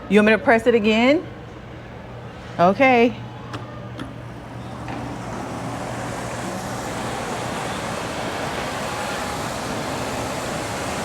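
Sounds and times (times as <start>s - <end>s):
steady rushing hiss: 5.0s - 11.0s.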